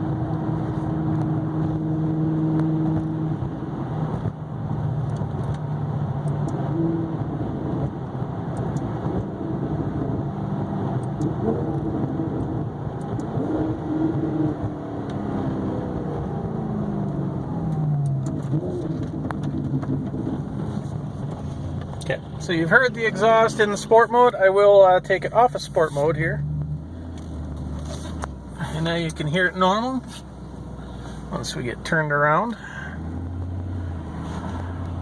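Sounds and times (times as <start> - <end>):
sports car exhaust note: 0.0 - 24.2.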